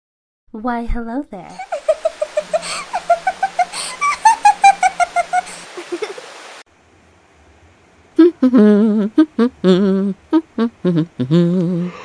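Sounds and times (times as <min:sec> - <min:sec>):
cartoon character humming: 0:08.2 - 0:12.0.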